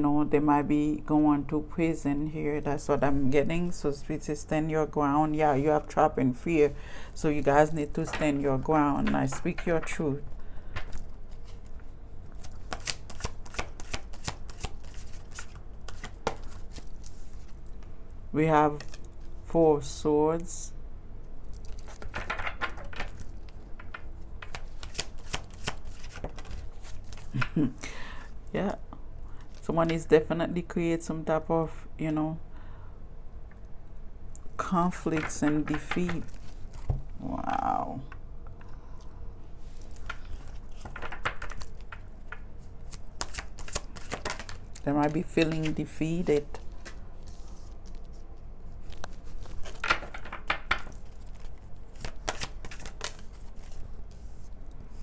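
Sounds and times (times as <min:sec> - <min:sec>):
cards being shuffled: 0:10.8 - 0:17.9, 0:18.7 - 0:19.4, 0:21.5 - 0:27.7, 0:35.0 - 0:37.3, 0:39.6 - 0:55.0.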